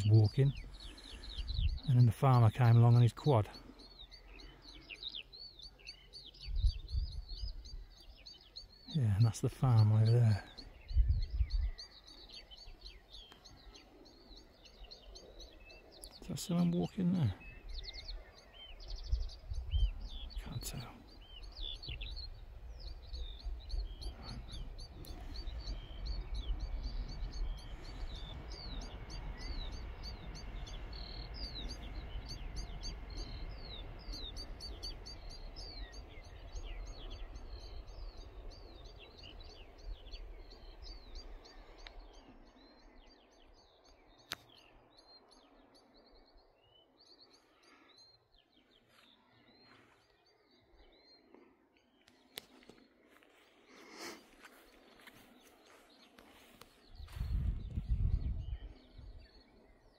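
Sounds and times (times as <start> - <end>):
songbirds chirping and singing: 0.0 - 59.9
low rumbling noise: 18.8 - 42.5.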